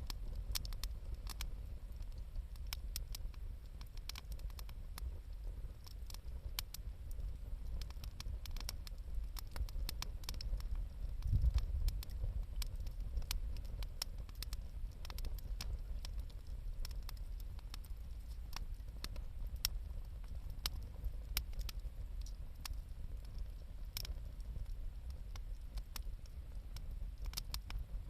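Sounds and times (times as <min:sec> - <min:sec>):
low fire rumble: 0:00.0 - 0:28.0
wood fire popping and snapping: 0:00.0 - 0:28.0.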